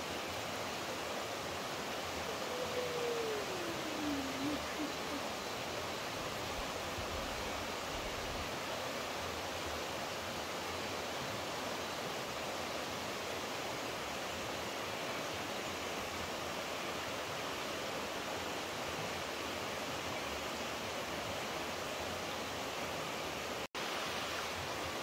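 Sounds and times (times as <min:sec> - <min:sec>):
flowing water rushing: 0:00.0 - 0:25.0.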